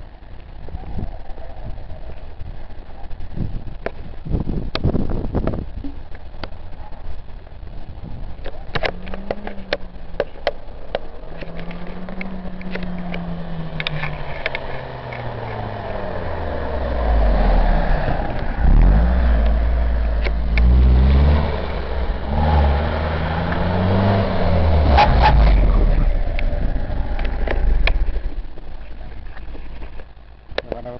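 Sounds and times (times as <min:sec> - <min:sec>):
car exhaust revving: 0:01.6 - 0:30.9.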